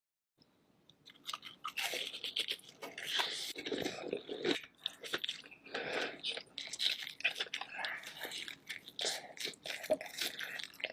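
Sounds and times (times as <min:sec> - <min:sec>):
chewing: 0:01.0 - 0:10.9
crab shell crunching: 0:01.0 - 0:10.9.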